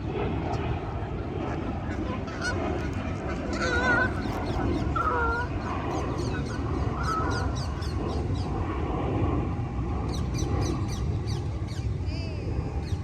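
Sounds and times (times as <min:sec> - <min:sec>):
low rumble: 0:00.0 - 0:13.0
geese honking: 0:01.5 - 0:05.6.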